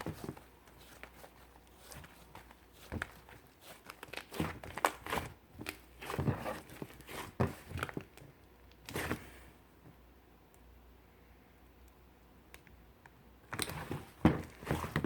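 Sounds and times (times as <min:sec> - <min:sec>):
slime squelching: 0:00.0 - 0:09.4.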